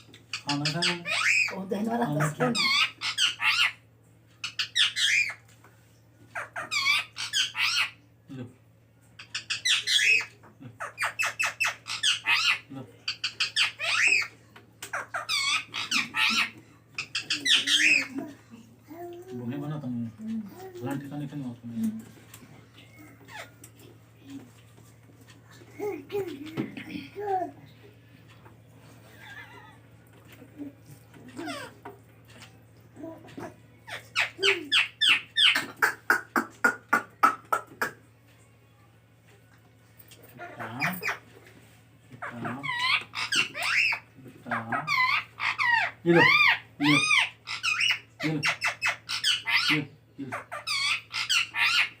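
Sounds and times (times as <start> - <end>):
parakeet squawking and chirping: 0.0 - 5.5, 6.3 - 8.0, 9.2 - 19.6, 22.6 - 24.5, 29.0 - 29.8, 30.6 - 37.9, 40.3 - 52.0
parrot sharp calls: 2.2 - 3.8, 6.3 - 8.0, 9.2 - 18.3, 33.4 - 38.0, 42.2 - 52.0.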